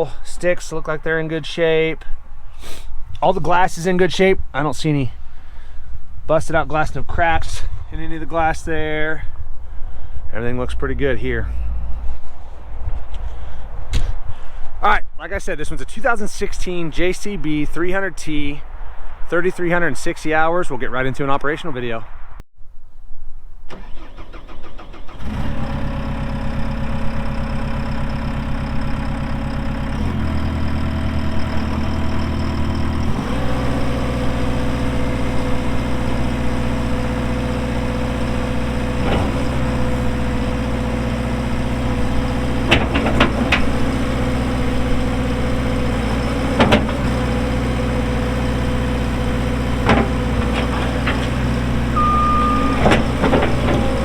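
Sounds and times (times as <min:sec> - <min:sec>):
diesel engine starting and revving: 0:10.4 - 0:14.1, 0:23.7 - 0:54.0.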